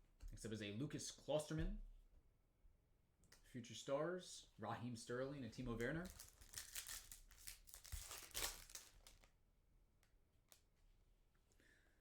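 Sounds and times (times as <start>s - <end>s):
foil wrapper tearing and crinkling: 5.9s - 9.3s.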